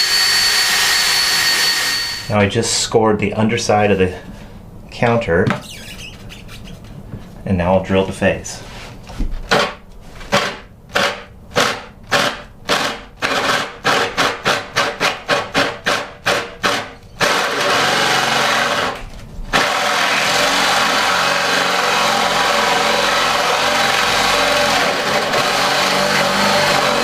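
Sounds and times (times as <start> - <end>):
power drill boring: 0.0 - 2.3, 15.8 - 27.0.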